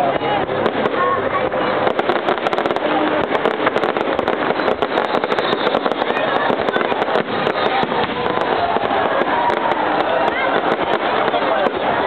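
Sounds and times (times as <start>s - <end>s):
fireworks crackling and popping: 0.0s - 12.0s.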